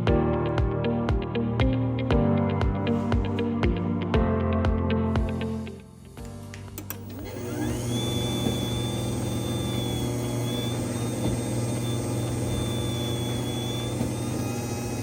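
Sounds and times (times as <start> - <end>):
garage door opener motor whining: 6.8 - 15.0.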